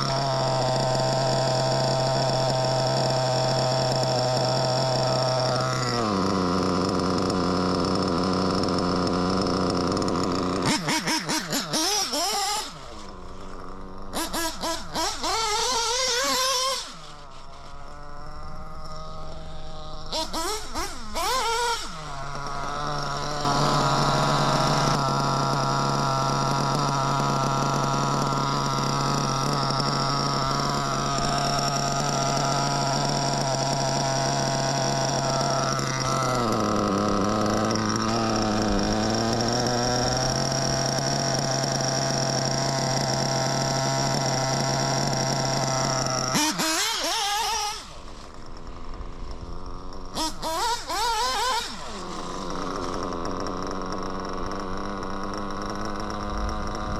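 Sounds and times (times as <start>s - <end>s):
nitro rc engine revving: 0.0s - 56.9s.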